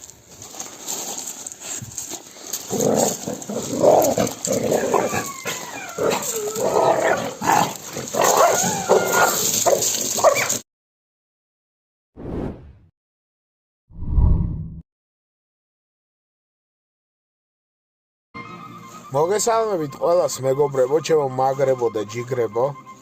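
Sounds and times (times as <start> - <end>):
dog whining and yelping: 4.0 - 7.4, 8.2 - 10.6.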